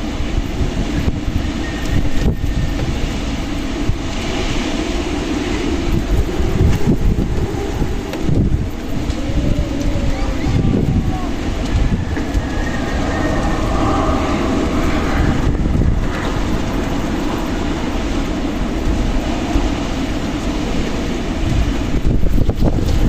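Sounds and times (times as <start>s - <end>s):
strong wind gusting: 0.0s - 23.0s.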